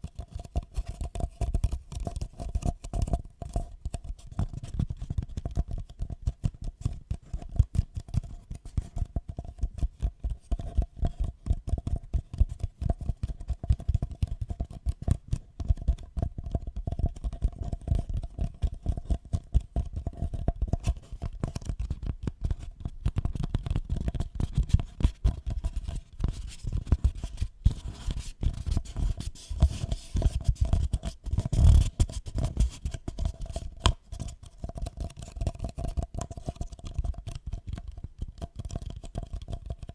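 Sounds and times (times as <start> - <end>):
scratching and rubbing strokes: 23.4 - 34.3.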